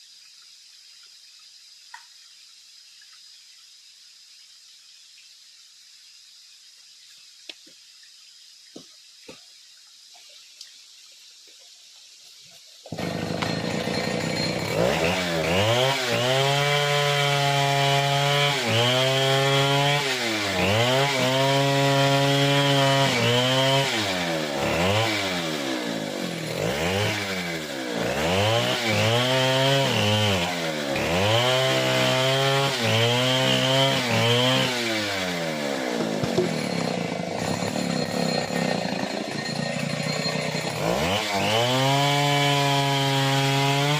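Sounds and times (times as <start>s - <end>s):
chainsaw cutting wood: 12.9s - 43.9s
chainsaw starting up: 12.9s - 43.9s.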